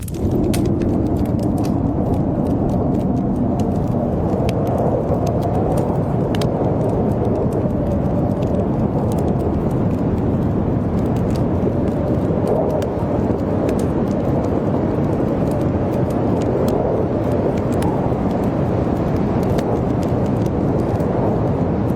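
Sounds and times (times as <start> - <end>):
howling blizzard wind: 0.0 - 21.9
wood fire crackling: 0.0 - 21.9.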